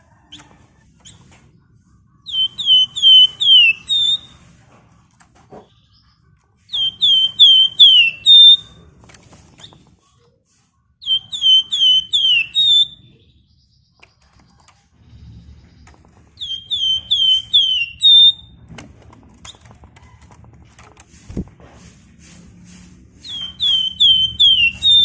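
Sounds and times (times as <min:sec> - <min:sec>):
bird whistling sharp notes: 0:02.3 - 0:04.3, 0:06.8 - 0:08.7, 0:11.0 - 0:13.1, 0:16.4 - 0:18.5, 0:23.2 - 0:25.0.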